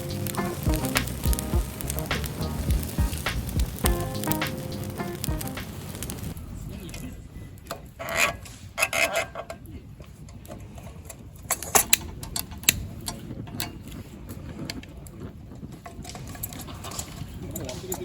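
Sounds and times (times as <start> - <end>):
metal lantern clicks and clanks: 11.5 - 14.0.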